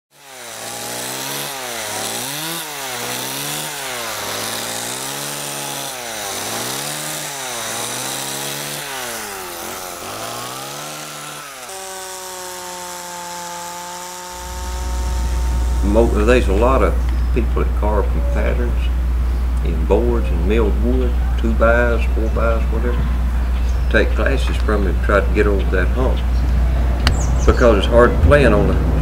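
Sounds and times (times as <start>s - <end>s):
chainsaw carving wood: 0.1s - 18.2s.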